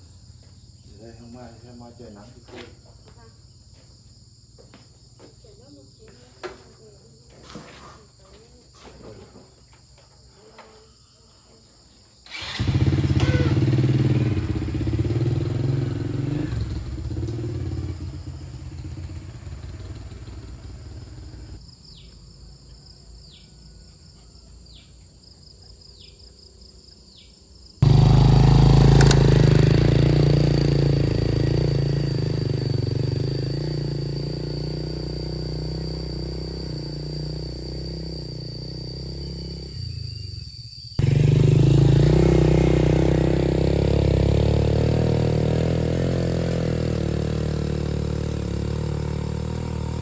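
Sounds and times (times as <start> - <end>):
insect drone: 0.0 - 50.0
motorcycle engine running: 12.3 - 21.6, 27.8 - 50.0.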